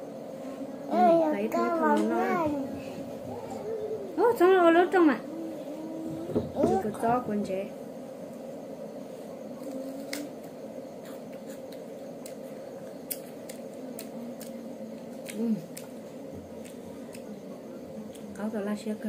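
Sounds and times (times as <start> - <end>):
low steady hum: 0.0 - 19.0
crunching crisp fruit: 9.6 - 17.4.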